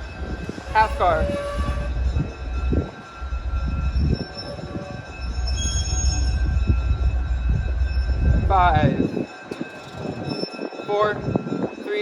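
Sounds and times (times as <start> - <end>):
train rumbling: 0.0 - 11.8
high-pitched wheel squeal: 0.1 - 6.9.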